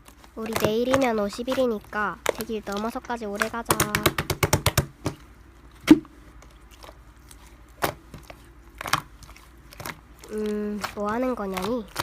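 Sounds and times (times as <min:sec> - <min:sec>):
sharp clicks and taps: 0:00.4 - 0:05.2.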